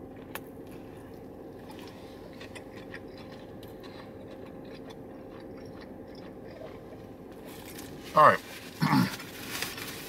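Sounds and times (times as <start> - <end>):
faint steady hum: 0.0 - 10.0
chewing crunches: 0.1 - 9.9.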